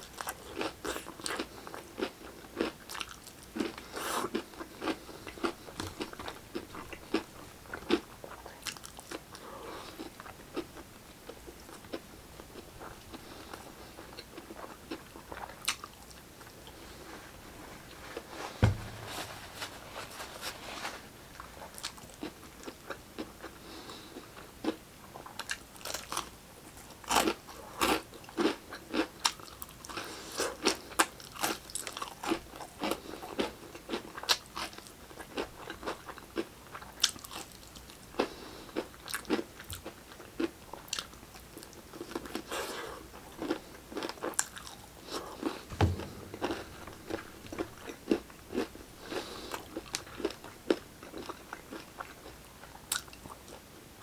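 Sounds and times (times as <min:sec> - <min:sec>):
low thump: 0:18.6 - 0:19.7, 0:45.7 - 0:48.2.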